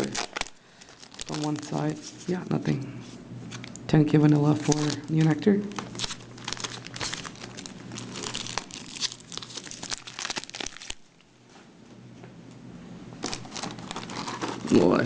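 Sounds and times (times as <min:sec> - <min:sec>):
foil wrapper crinkling: 0:00.0 - 0:02.4, 0:03.5 - 0:11.3, 0:13.2 - 0:15.0.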